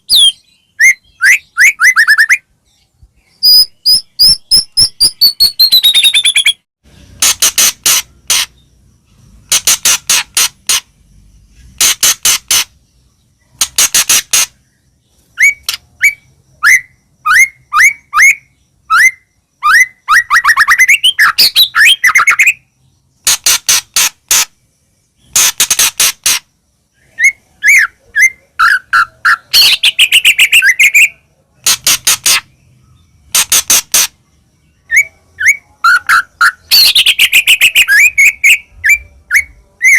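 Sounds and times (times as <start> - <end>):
bird singing loudly: 0.0 - 6.7, 13.6 - 22.7, 27.0 - 31.3, 34.1 - 39.9.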